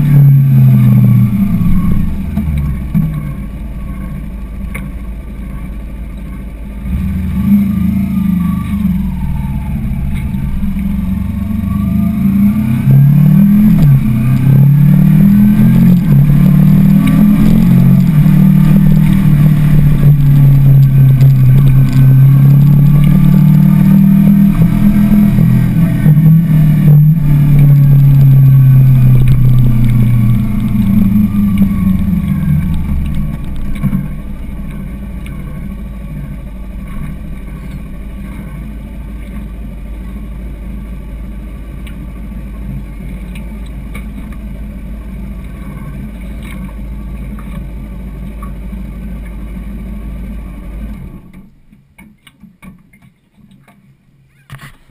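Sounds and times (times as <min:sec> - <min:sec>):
motorcycle engine slowing down: 0:00.0 - 0:42.9
motorcycle engine idling: 0:01.7 - 0:07.2, 0:27.3 - 0:50.9.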